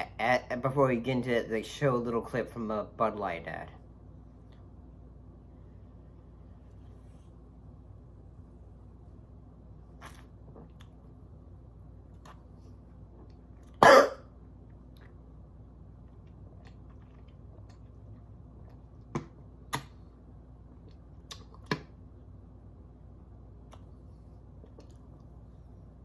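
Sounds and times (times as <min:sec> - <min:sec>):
person coughing: 0:13.8 - 0:14.3.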